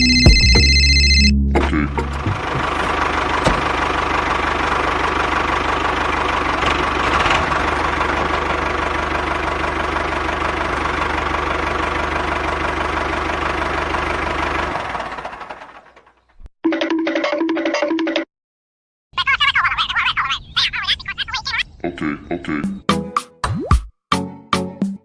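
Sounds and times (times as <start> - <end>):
small engine running: 2.0 - 16.3.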